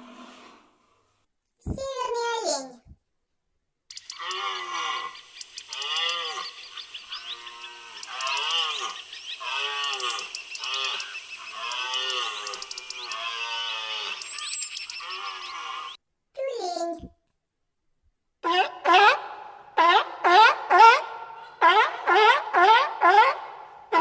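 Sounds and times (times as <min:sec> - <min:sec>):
animals calling: 0:03.9 - 0:16.0.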